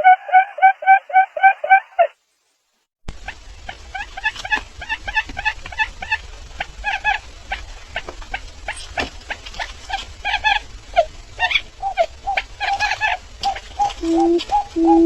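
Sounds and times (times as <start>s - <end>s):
bird chirping in rapid runs: 3.3s - 15.0s.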